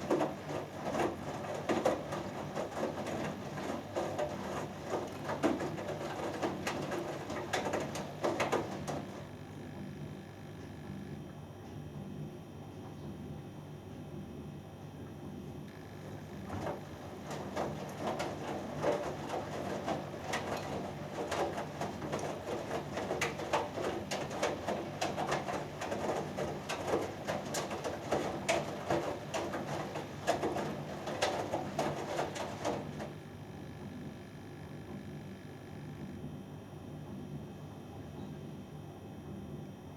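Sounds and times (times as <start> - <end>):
laundry and water sloshing in drum: 0.0 - 9.5, 15.7 - 33.4
washing machine motor hum: 0.0 - 39.9.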